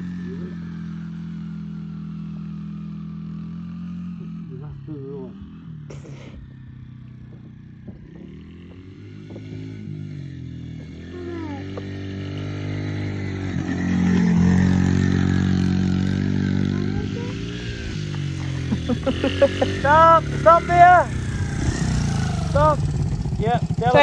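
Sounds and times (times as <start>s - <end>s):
small motorbike engine revving: 0.0s - 24.0s.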